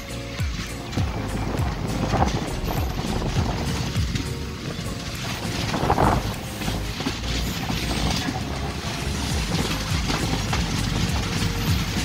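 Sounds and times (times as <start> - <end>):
coach rattling: 0.0 - 12.0
train coach rumbling: 0.0 - 12.0
wheels clattering over rails: 0.0 - 12.0.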